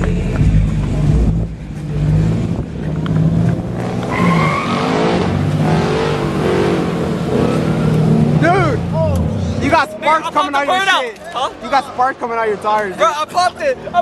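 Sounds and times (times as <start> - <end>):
car engine at high revs: 0.0 - 9.8
tire squealing: 0.0 - 14.0.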